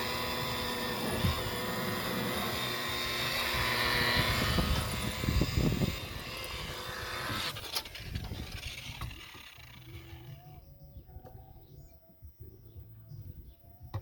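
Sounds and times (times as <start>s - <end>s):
electric buffer running: 0.0s - 10.5s.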